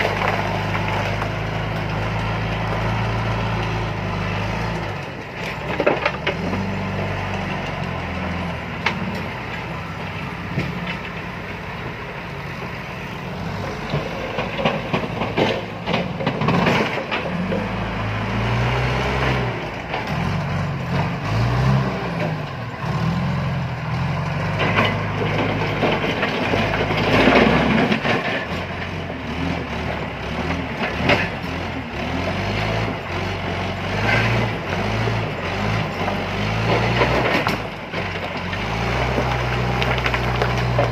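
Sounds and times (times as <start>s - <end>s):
diesel engine working under load: 0.0s - 40.9s
stones clattering: 37.0s - 40.9s.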